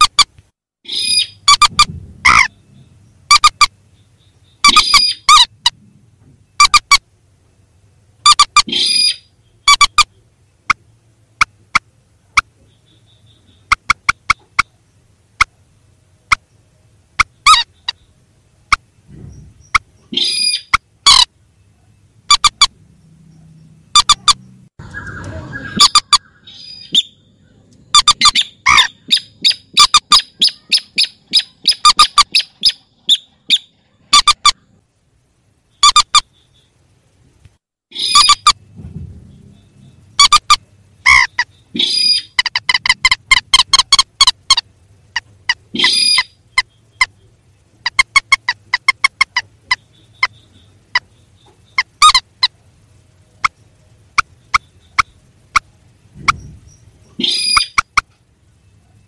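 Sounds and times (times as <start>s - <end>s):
rail bird harsh calls: 0.0s - 5.8s, 6.6s - 7.1s, 8.2s - 15.6s, 17.2s - 21.4s, 22.2s - 23.0s, 23.9s - 34.7s, 37.9s - 38.7s, 39.3s - 52.7s, 53.4s - 58.2s
harsh honking bird call: 0.9s - 3.7s.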